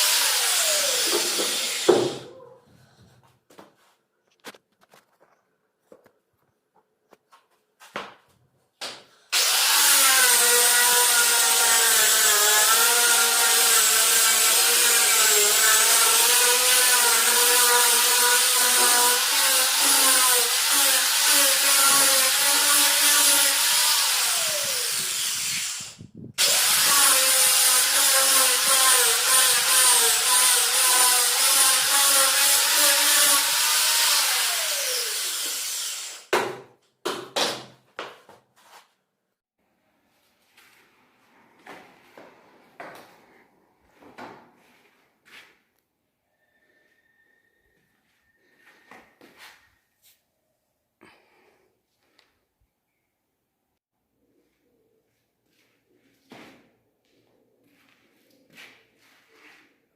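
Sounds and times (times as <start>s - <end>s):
power tool motor whining: 0.0s - 2.2s, 9.4s - 36.3s.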